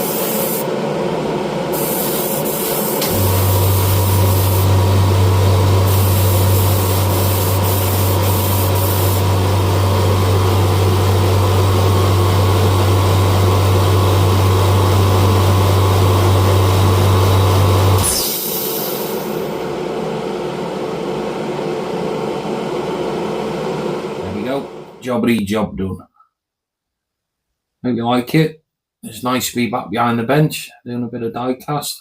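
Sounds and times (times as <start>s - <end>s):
spray gun hissing: 0.0s - 0.7s, 1.7s - 4.9s, 5.6s - 9.4s
low hum: 2.7s - 25.3s.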